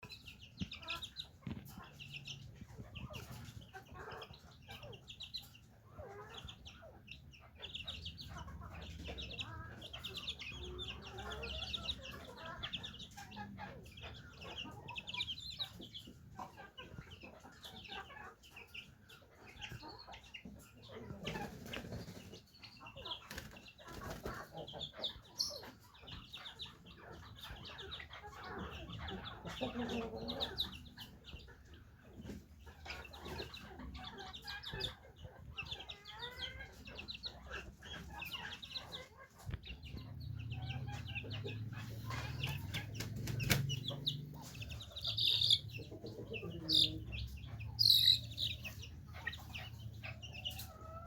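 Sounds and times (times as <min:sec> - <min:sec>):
chicks cheeping and clucking: 0:00.0 - 0:51.0
wings flapping: 0:42.3 - 0:44.0
rapid high chirps: 0:47.7 - 0:48.6.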